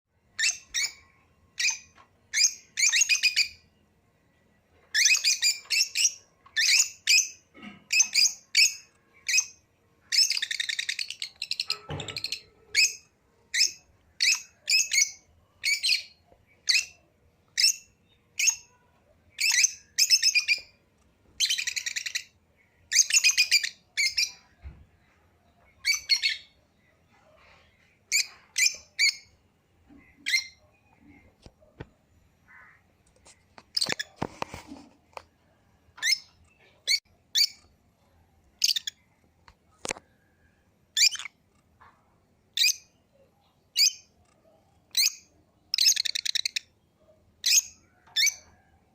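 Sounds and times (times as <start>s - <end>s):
parrots chirping and squawking: 21.4s - 22.3s, 38.6s - 39.0s, 41.0s - 41.4s, 44.9s - 46.6s.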